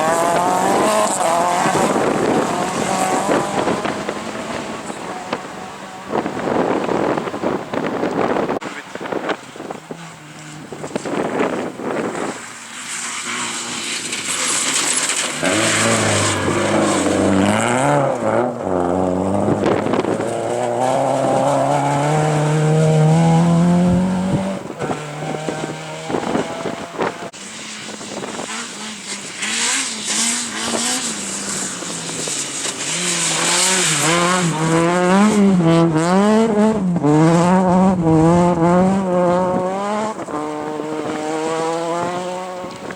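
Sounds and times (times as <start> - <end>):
rally car engine revving: 0.0 - 42.9
tire squeal: 9.2 - 35.4.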